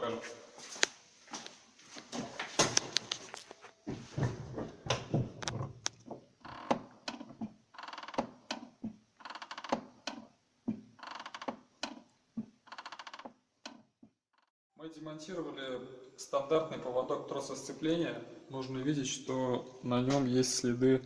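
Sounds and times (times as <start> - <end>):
clutch pedal creaking squeaks: 5.4 - 10.3, 11.0 - 12.1, 12.7 - 13.8.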